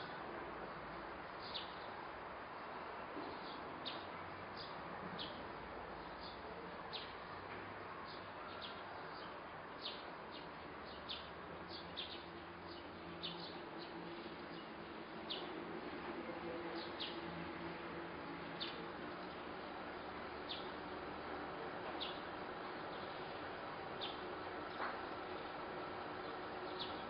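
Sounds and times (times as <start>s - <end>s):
steady background noise: 0.0s - 27.0s
bird chirping: 8.1s - 14.7s, 26.2s - 27.0s.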